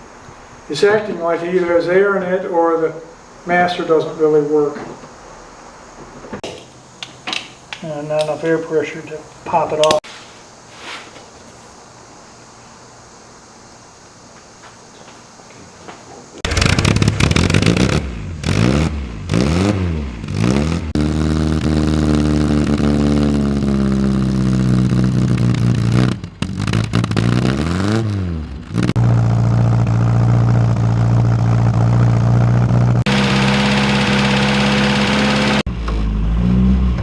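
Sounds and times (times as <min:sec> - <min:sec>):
car engine starting and revving: 0:16.4 - 0:37.0.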